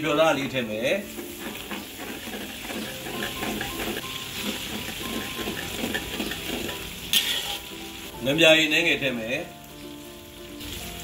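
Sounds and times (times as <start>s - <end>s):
chilli and garlic sizzling in oil: 0.0s - 11.0s
metal spatula scraping a wok: 1.0s - 8.1s.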